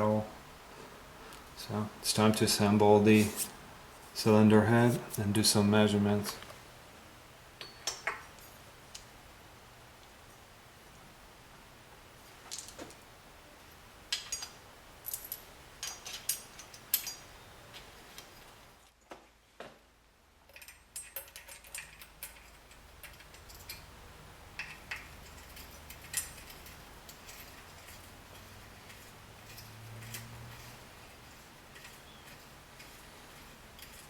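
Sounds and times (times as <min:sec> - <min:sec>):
metal parts clinking: 0:14.1 - 0:17.4, 0:20.5 - 0:23.9, 0:24.5 - 0:34.0.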